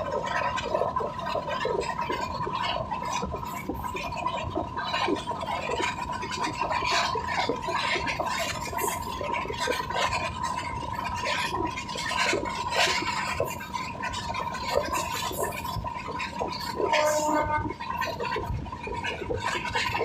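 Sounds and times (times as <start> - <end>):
train wheels rattling on rails: 0.0 - 20.0
high-pitched whine: 16.4 - 18.3.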